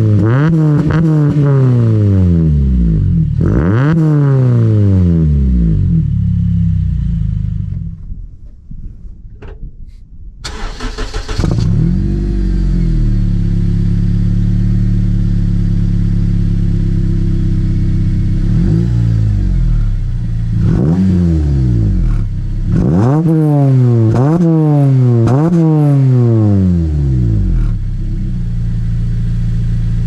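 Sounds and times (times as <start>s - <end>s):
engine revving: 0.0s - 7.8s, 10.5s - 28.3s
engine starting and idling: 10.4s - 11.8s.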